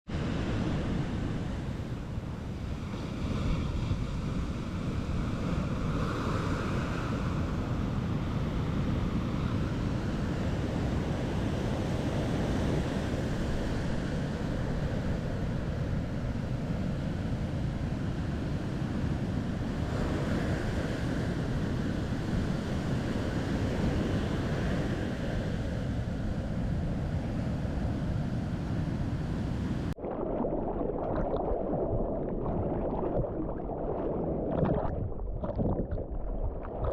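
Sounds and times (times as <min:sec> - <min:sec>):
ocean surf: 0:00.1 - 0:36.9
muffled sloshing of water: 0:30.0 - 0:36.9
wind buffeting microphone: 0:31.0 - 0:36.9.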